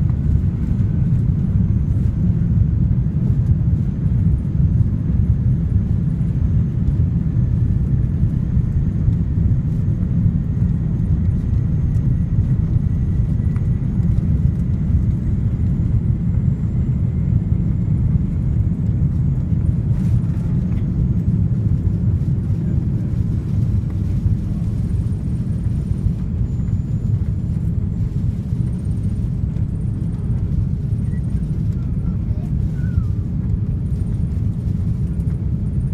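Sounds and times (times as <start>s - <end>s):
airplane cabin engine rumble: 0.0s - 35.9s
faint high whine: 8.2s - 34.2s.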